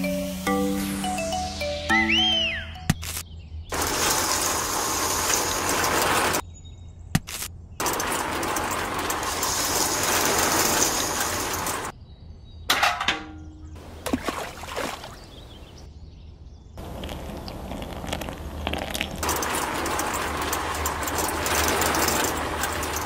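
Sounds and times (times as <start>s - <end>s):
toy cement mixer rattling: 3.7s - 6.4s, 7.8s - 11.9s, 19.1s - 23.0s.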